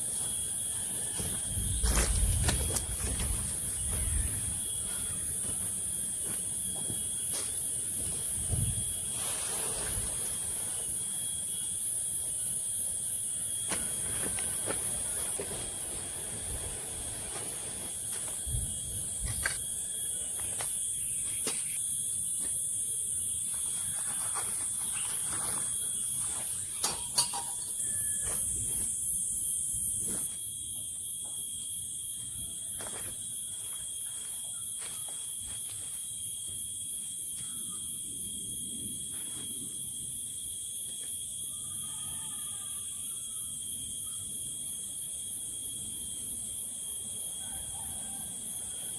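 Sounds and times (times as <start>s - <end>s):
high insect chorus: 0.0s - 48.9s
thin steady tone: 0.0s - 48.9s.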